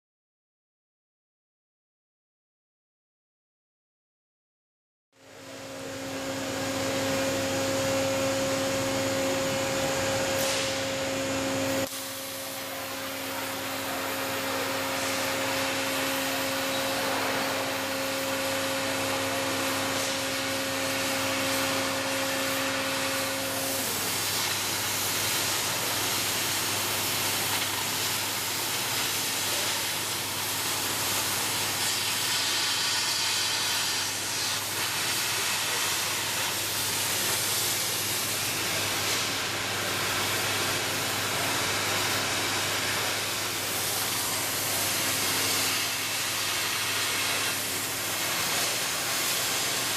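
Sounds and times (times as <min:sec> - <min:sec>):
machine hum: 0:05.2 - 0:31.8
cutting torch hissing: 0:08.8 - 0:49.9.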